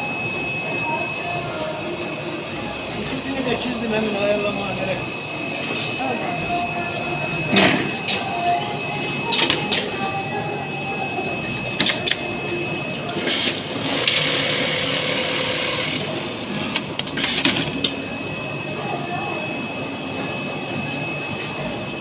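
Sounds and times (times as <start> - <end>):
machine high whine: 0.0 - 22.0.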